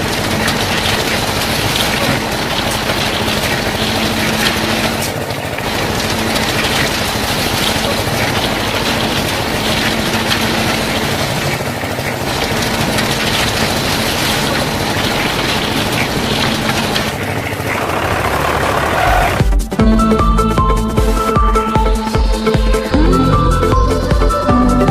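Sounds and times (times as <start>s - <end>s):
small machine motor humming: 0.0s - 19.5s.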